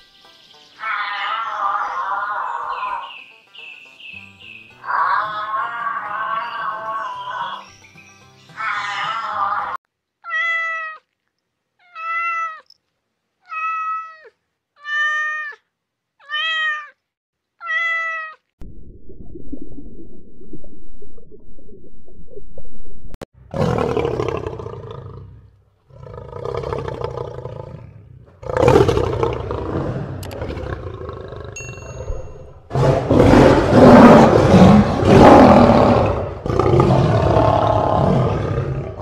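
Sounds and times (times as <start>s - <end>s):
meow-like animal calls: 0.8s - 3.0s, 8.6s - 11.1s, 11.8s - 12.7s, 13.4s - 17.0s, 17.6s - 18.5s
low underwater rumble: 18.6s - 23.2s
lion roaring: 23.5s - 31.6s, 32.7s - 39.0s.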